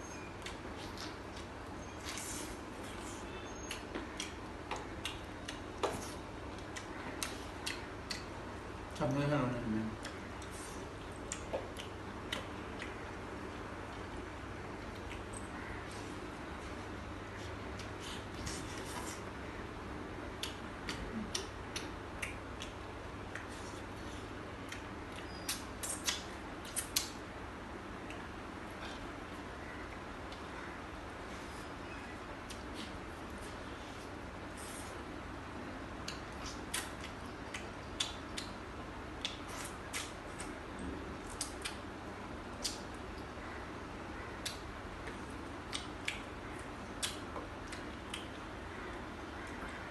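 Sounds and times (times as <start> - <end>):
low background hum: 0.0 - 49.9
eating clicks and smacks: 3.6 - 9.1, 10.0 - 13.3, 20.3 - 23.8, 24.6 - 27.2, 35.9 - 41.9, 42.5 - 43.4, 44.3 - 49.8.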